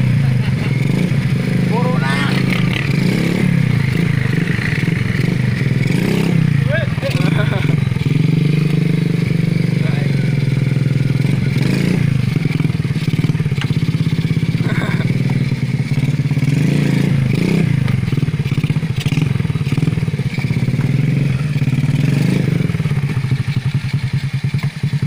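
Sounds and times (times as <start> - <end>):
motorbike engine idling: 0.0 - 25.0.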